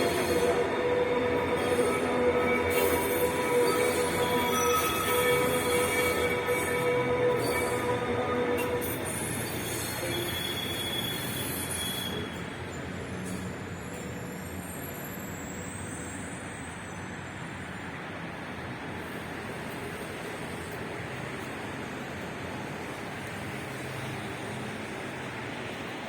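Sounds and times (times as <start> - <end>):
faint wheel squeal: 0.0 - 17.9
rail vehicle rushing: 0.0 - 26.0.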